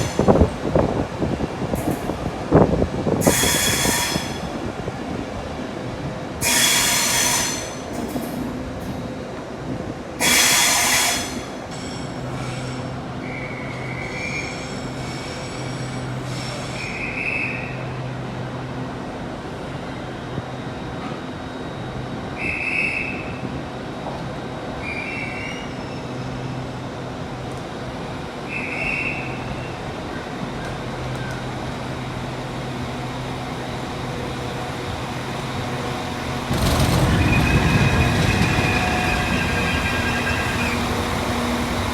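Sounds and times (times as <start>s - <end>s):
train wheels squealing: 3.2s - 4.6s, 6.4s - 8.2s, 10.2s - 18.1s, 21.0s - 23.5s, 24.6s - 26.7s, 28.4s - 31.5s, 36.5s - 41.9s.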